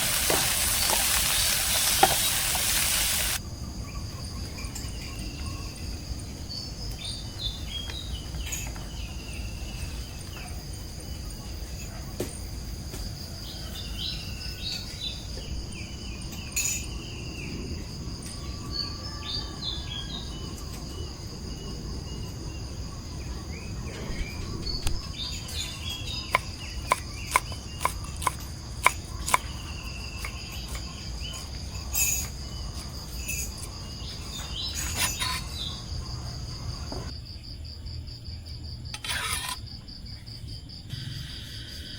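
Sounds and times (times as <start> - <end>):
birds chirping: 0.0 - 3.4
insects trilling: 0.0 - 41.9.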